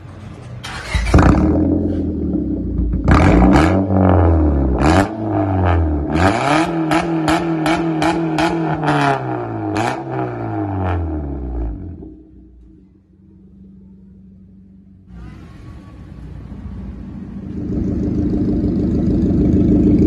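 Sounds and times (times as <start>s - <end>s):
car engine revving: 0.8s - 20.0s.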